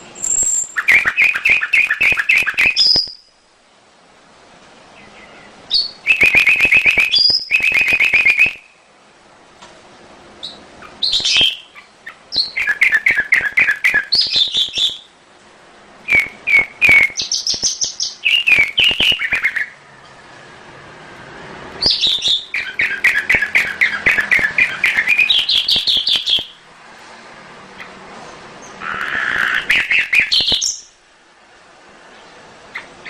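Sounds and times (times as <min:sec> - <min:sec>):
canary singing trills: 0:00.0 - 0:03.4, 0:04.9 - 0:08.8, 0:10.4 - 0:15.2, 0:16.0 - 0:19.8, 0:21.8 - 0:26.6, 0:28.6 - 0:31.0, 0:32.2 - 0:33.0.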